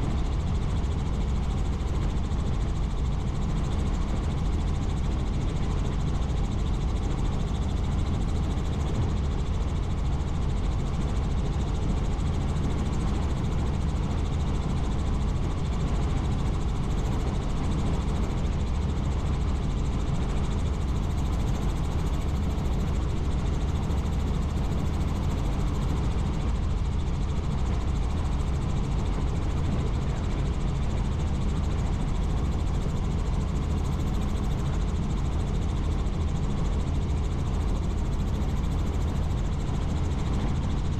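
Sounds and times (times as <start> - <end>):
helicopter engine and rotor: 0.0 - 40.9.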